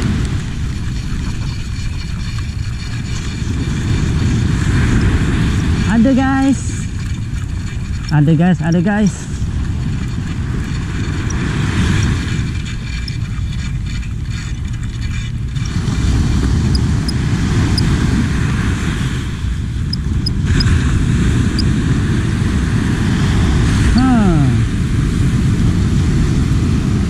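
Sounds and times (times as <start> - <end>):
small waves breaking on beach: 0.0 - 27.0
wind buffeting the microphone: 0.0 - 27.0
fishing reel ticking: 0.3 - 3.9, 6.0 - 18.0.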